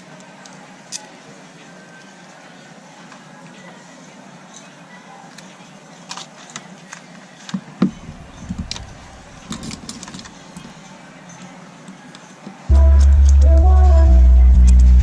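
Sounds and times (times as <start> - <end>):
tools clicking and tapping: 6.1 - 13.4.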